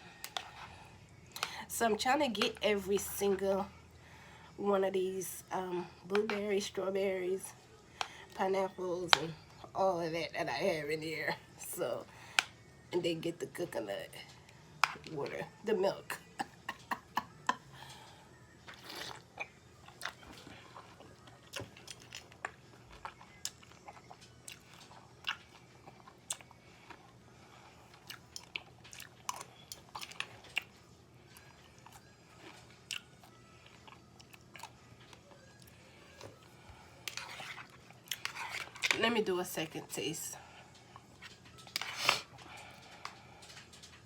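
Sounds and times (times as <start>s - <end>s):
person chewing wet fruit: 18.6s - 38.9s.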